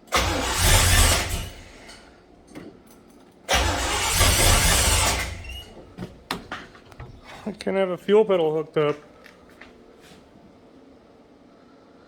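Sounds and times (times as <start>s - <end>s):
engine cranking on starter: 0.0s - 2.1s, 3.5s - 7.5s.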